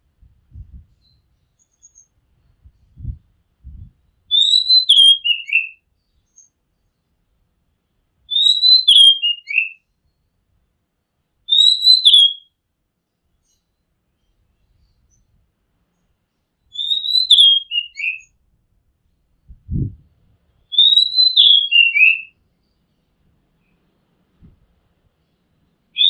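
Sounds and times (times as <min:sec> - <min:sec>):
bird singing whistled phrases: 0:04.3 - 0:05.8, 0:08.3 - 0:09.8, 0:11.5 - 0:12.5, 0:16.7 - 0:18.3, 0:20.7 - 0:22.3.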